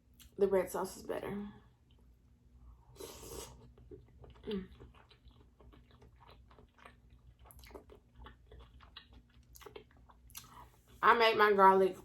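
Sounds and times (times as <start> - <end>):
close chewing with wet mouth clicks: 3.6 - 10.7.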